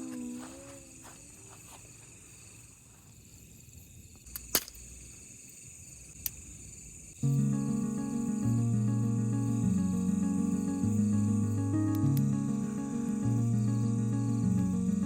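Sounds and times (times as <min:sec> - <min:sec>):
crickets chirping: 0:00.0 - 0:15.0
music: 0:07.2 - 0:15.0
sharp clicks: 0:11.8 - 0:12.4.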